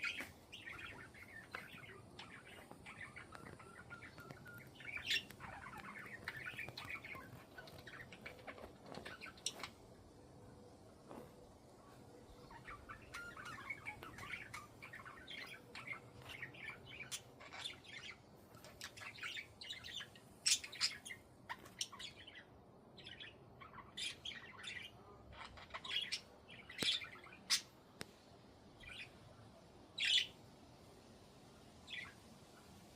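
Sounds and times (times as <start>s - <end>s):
budgerigars chirping: 0.0s - 9.8s.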